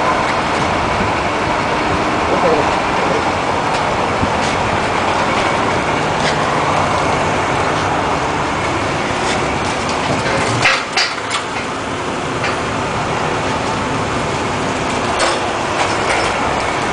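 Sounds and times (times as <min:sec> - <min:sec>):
mechanical rumble: 0:00.0 - 0:16.9
sharp metallic knocks: 0:09.8 - 0:11.8, 0:15.1 - 0:16.9.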